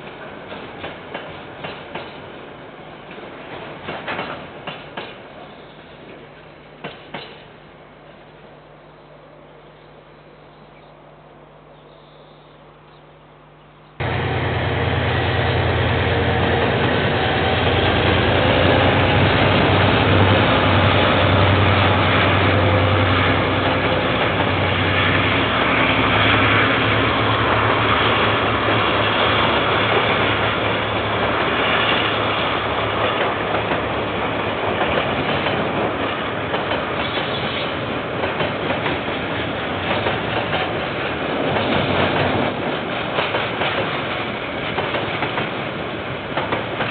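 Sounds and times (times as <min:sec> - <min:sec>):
locomotive engine drone: 0:07.6 - 0:38.2.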